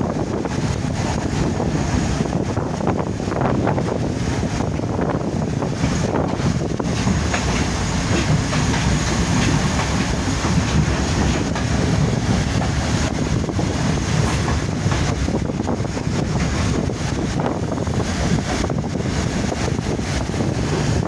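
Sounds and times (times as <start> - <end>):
train wheels rumbling on rails: 0.0 - 21.0
wind buffeting microphone: 0.0 - 21.0.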